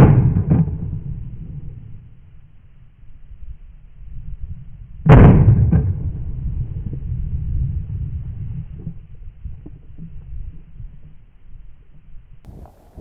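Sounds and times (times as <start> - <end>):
shotgun blast: 0.0 - 1.2
wind buffeting microphone: 3.1 - 13.0.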